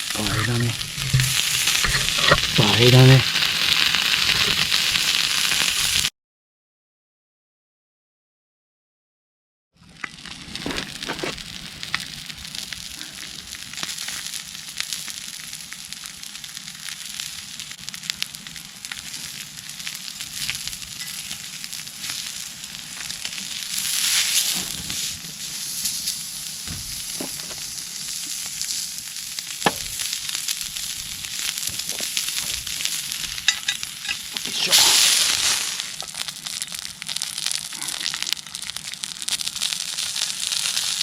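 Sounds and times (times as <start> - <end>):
meat sizzling on a griddle: 0.0 - 6.1, 9.8 - 41.0
fat spattering pops: 26.6 - 28.4, 29.5 - 30.5.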